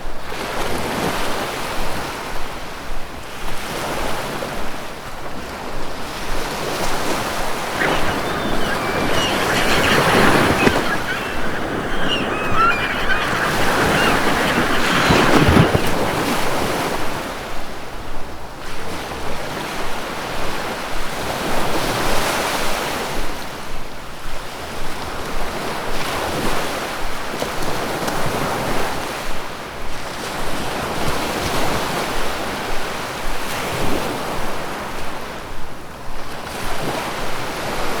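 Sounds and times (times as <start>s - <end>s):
river water rushing: 7.5s - 16.1s.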